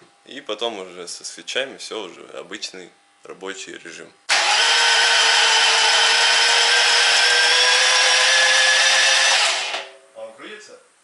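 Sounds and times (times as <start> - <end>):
starter motor cranking: 4.3 - 9.9.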